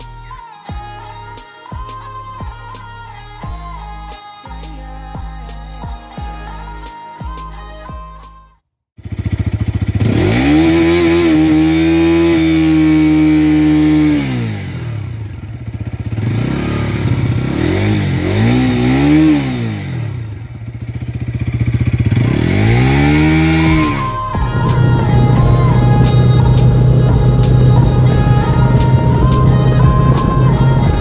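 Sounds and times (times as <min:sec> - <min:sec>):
motorcycle engine revving: 0:09.0 - 0:31.0.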